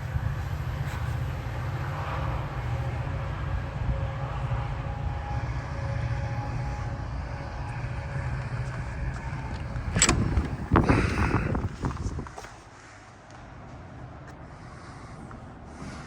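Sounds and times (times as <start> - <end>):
faint steady tones: 0.0 - 11.6
diesel locomotive rumbling: 0.0 - 16.0.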